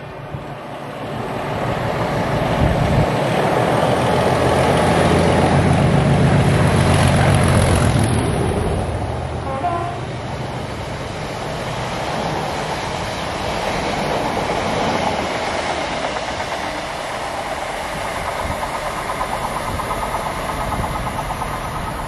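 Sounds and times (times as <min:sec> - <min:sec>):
train wheels rumbling on rails: 0:00.0 - 0:22.0
wheels clacking over rail joints: 0:11.4 - 0:22.0.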